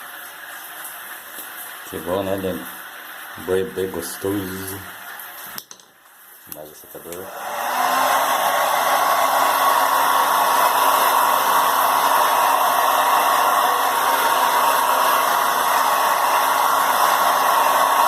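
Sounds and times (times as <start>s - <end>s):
hair dryer running: 7.0s - 18.0s.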